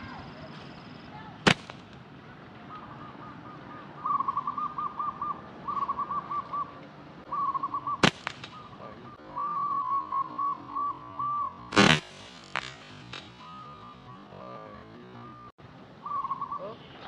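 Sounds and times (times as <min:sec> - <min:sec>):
slingshot rubber bands snapping: 0:01.5 - 0:02.0, 0:08.0 - 0:08.6, 0:11.7 - 0:13.4
bird calling repeated notes: 0:02.6 - 0:17.0.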